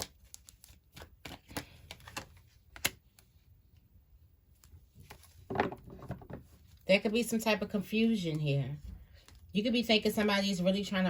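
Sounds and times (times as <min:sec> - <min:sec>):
cards being shuffled: 0:00.0 - 0:03.3.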